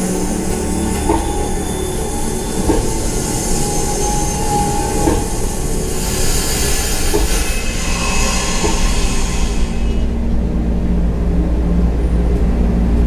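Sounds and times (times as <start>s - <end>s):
wheel squeal: 0.0s - 10.3s
hiss: 0.0s - 10.4s
train rumbling on rails: 0.0s - 13.0s.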